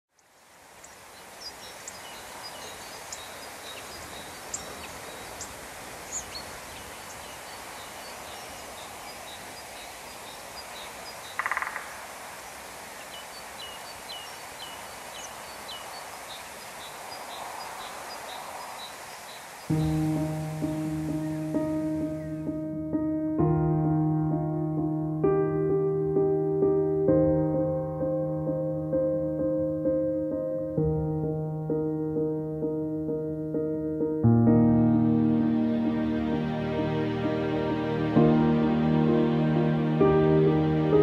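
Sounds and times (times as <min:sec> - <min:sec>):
birds chirping: 0:00.1 - 0:23.2
steady background hiss: 0:00.1 - 0:33.9.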